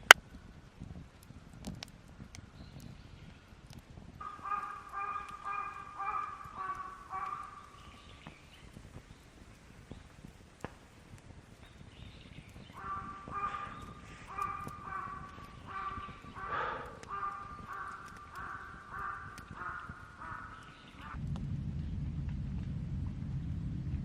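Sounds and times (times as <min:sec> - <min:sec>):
sharp clicks: 0:03.6 - 0:21.2
bird giving nasal calls: 0:04.2 - 0:08.4, 0:12.7 - 0:21.2.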